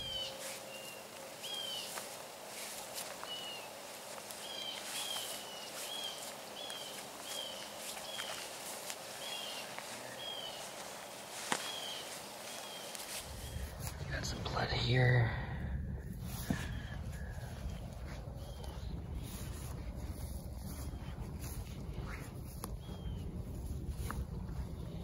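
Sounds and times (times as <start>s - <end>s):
bird chirping: 0.0s - 15.0s
footsteps in dry grass: 0.0s - 25.0s.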